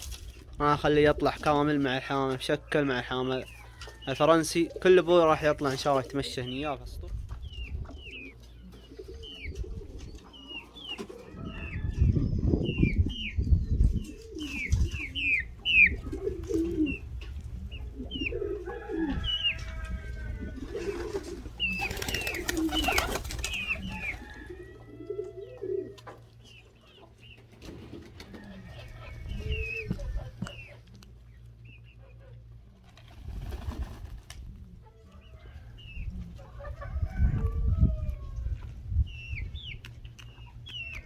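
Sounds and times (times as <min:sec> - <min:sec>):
pigeons cooing: 0:00.0 - 0:06.7, 0:07.4 - 0:39.7
small birds chirping: 0:01.8 - 0:11.1, 0:12.1 - 0:18.4, 0:21.6 - 0:24.4, 0:28.7 - 0:32.4, 0:38.9 - 0:41.0
wind rumbling on microphone: 0:06.8 - 0:08.1, 0:11.3 - 0:21.7, 0:28.8 - 0:30.6, 0:35.4 - 0:40.2
wings flapping: 0:20.7 - 0:24.3, 0:32.8 - 0:34.5.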